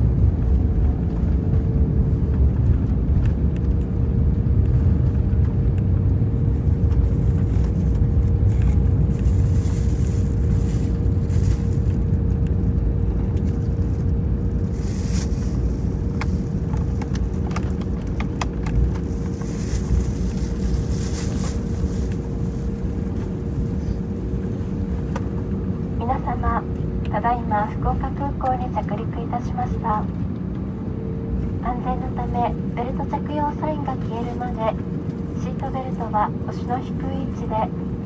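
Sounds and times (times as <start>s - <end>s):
aircraft cabin rumble: 0.0s - 38.0s
constant hum tone: 0.0s - 38.0s.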